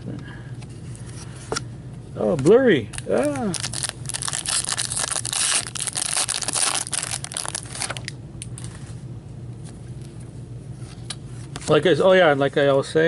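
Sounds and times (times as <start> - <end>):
plastic wrapper crinkling: 2.9 - 8.2.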